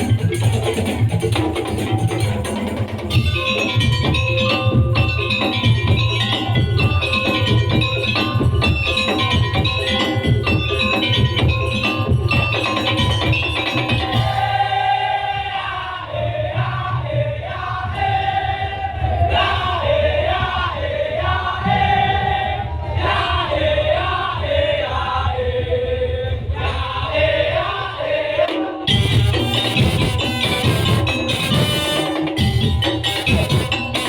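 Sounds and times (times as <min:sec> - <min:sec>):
heavy low drum beat: 0:00.0 - 0:14.7, 0:28.9 - 0:34.0.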